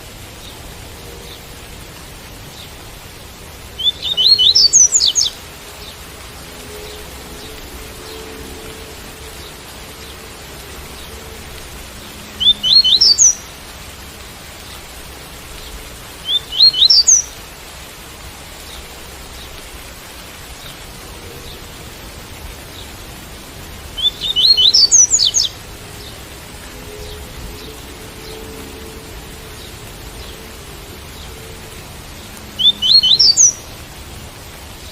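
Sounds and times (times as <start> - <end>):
rain hiss: 0.0 - 34.9
bird singing rising notes: 3.7 - 10.2, 12.4 - 13.5, 16.2 - 17.3, 23.9 - 30.5, 32.6 - 33.6.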